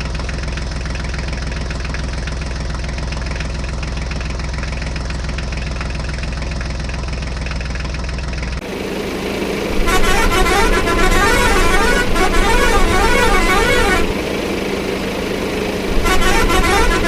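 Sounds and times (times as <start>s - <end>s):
heavy vehicle engine idling: 0.0s - 17.0s.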